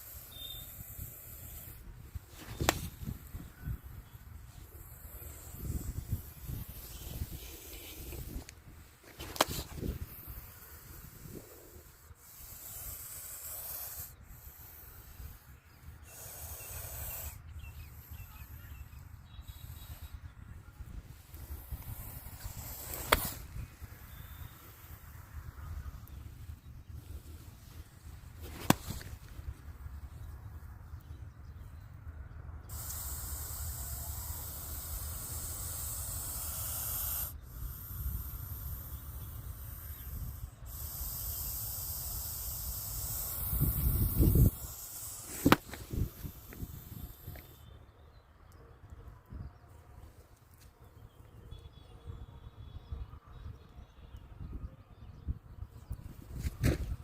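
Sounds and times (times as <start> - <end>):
snake hissing: 0.0 - 30.3, 32.6 - 47.6.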